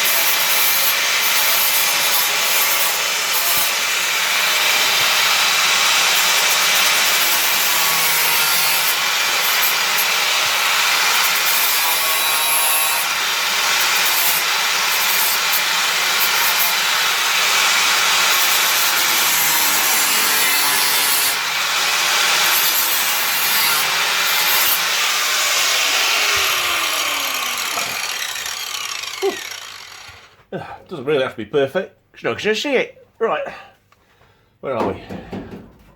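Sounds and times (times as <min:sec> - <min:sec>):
electric grinder on sheet steel: 0:00.0 - 0:30.4.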